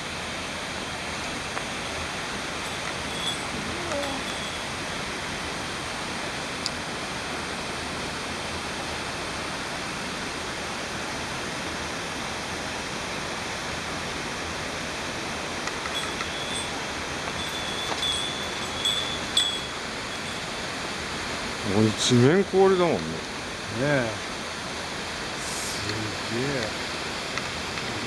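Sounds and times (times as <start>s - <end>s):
waterfall rushing: 14.8s - 28.0s.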